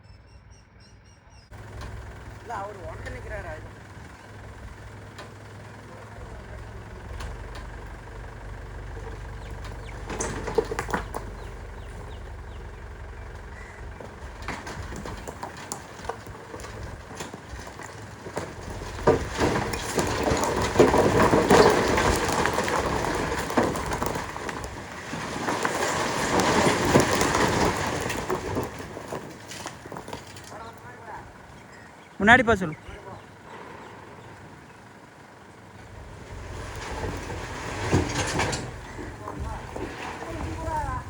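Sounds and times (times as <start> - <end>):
diesel engine running: 1.5 - 41.0
rock rattling into trolley: 8.9 - 12.8, 14.1 - 31.0, 36.6 - 41.0.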